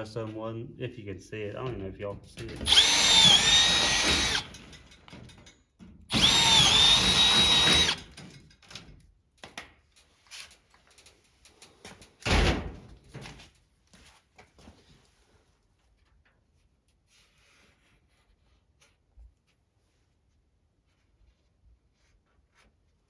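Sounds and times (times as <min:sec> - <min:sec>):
cordless drill whining: 0:02.5 - 0:05.1, 0:06.1 - 0:08.2.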